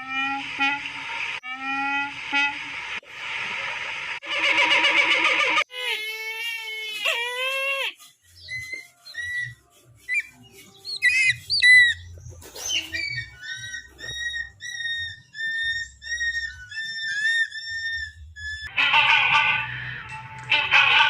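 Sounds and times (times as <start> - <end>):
sharp bird calls: 8.0 - 18.7
bird whistling: 8.3 - 18.7.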